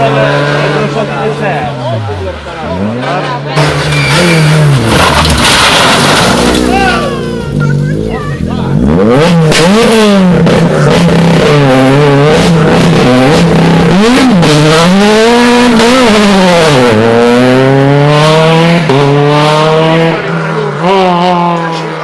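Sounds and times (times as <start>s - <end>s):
rally car engine revving: 0.0s - 22.0s
engine cracks and pops: 3.6s - 7.0s.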